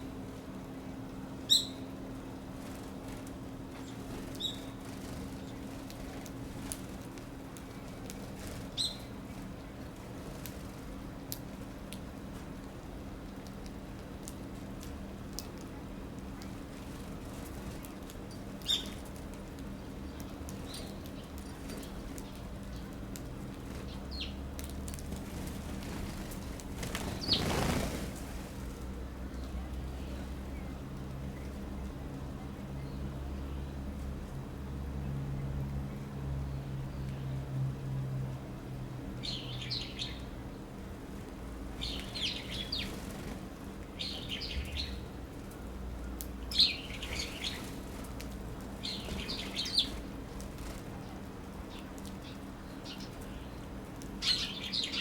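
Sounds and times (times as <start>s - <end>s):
steady low hum: 0.0s - 55.0s
birds chirping: 3.8s - 5.8s, 25.8s - 28.0s, 41.8s - 43.4s, 44.0s - 45.1s, 46.4s - 48.1s, 48.8s - 55.0s.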